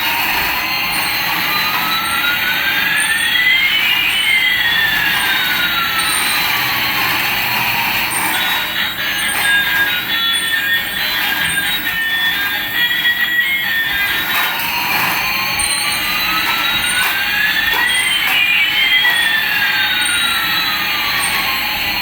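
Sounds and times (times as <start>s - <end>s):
rising and falling whining tones: 0.0s - 22.0s.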